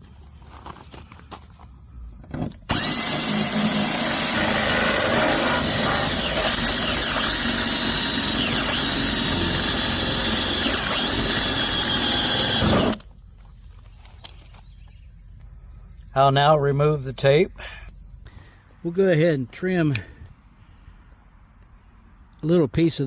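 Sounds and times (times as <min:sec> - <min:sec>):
power drill whining: 0:02.7 - 0:13.1.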